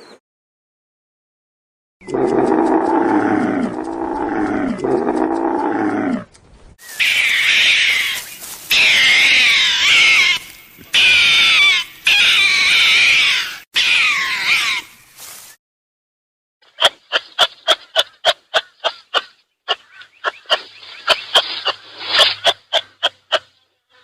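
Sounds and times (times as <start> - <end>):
short clicking animal calls: 2.0 - 6.1, 16.8 - 23.6
high wavering animal cries: 6.8 - 14.9.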